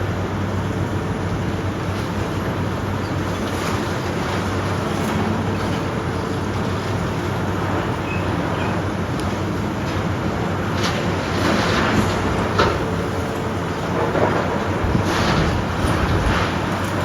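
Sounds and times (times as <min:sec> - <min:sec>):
demolition machinery diesel drone: 0:00.0 - 0:17.0.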